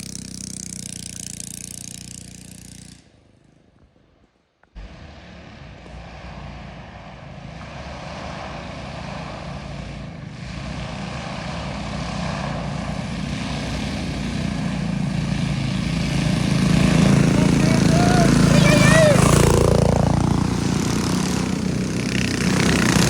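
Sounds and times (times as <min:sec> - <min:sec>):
small minibike engine running: 0:00.0 - 0:03.0, 0:11.1 - 0:23.0.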